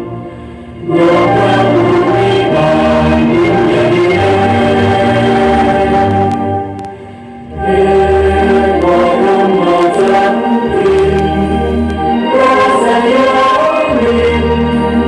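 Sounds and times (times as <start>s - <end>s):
choir singing held chords: 0.0s - 15.0s
low bass line: 7.8s - 12.2s.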